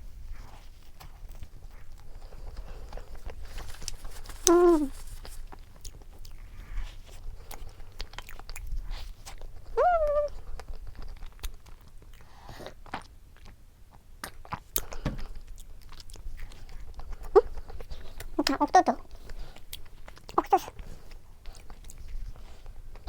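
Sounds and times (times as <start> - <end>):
person humming: 4.4 - 5.0, 9.8 - 10.4
person chewing: 5.5 - 13.6, 14.2 - 23.0.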